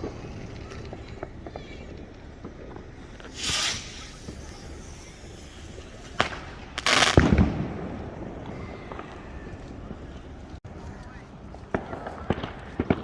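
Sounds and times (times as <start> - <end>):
firework hiss: 0.0 - 9.4
firework burst with low bang: 0.0 - 10.6
firework crack: 0.0 - 13.0.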